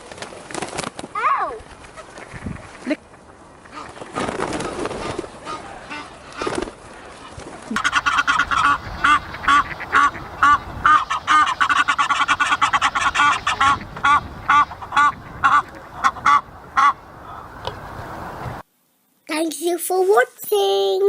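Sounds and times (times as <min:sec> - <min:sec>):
ducks and geese quacking and honking: 0:01.9 - 0:17.7.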